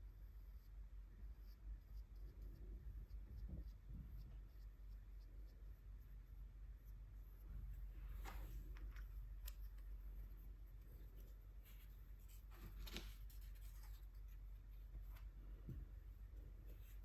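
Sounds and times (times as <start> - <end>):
low steady hum: 0.0 - 17.0
brush strokes on paper: 9.6 - 17.0.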